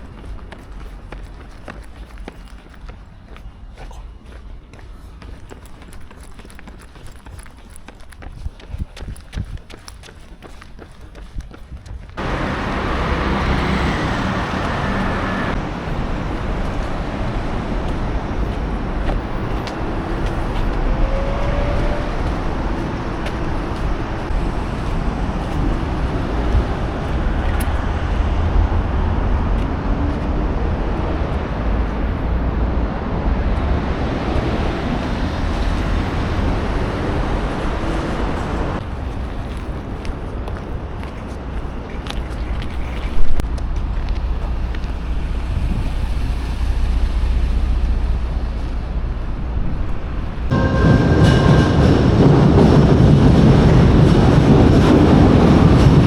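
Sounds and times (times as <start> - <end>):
road traffic rumble: 12.2 - 56.0.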